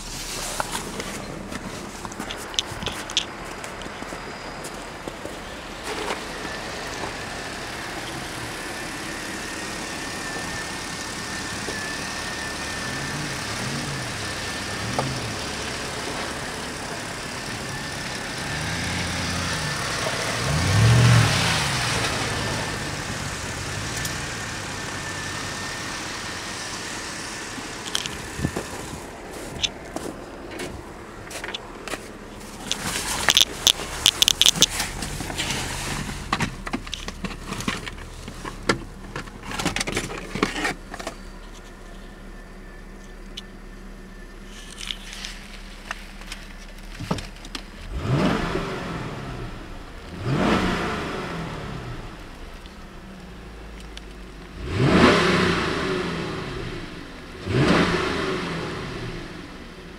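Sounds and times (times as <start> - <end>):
car engine idling and revving: 0.0 - 59.9
sharp clicks: 32.6 - 35.0.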